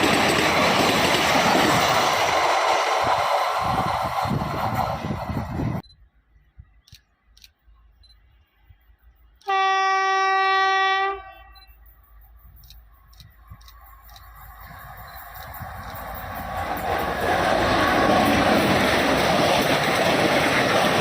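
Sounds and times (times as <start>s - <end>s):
train rumbling: 0.0s - 21.0s
locomotive horn blast: 9.4s - 11.6s.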